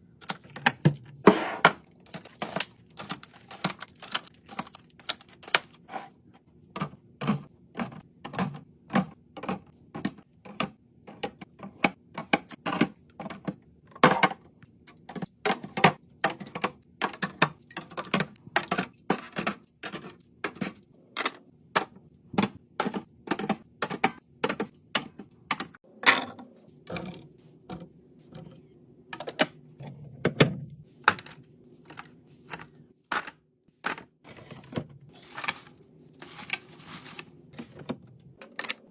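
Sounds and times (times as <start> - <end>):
containers clicking on shelves: 6.8 - 35.7.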